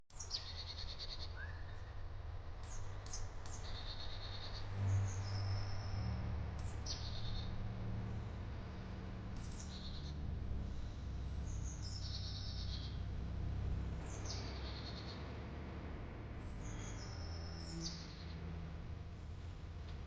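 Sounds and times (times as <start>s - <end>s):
steady low hum: 0.1s - 20.0s
small birds calling with trills: 0.2s - 2.0s, 2.6s - 7.8s, 9.4s - 15.4s, 16.6s - 18.5s.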